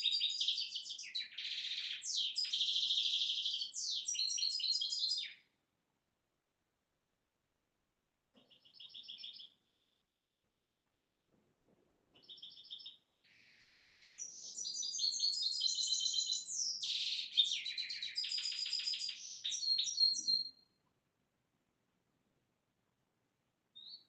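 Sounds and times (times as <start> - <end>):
songbird chirps and trills: 0.0 - 5.6, 8.3 - 10.4, 12.1 - 21.0, 23.7 - 24.0.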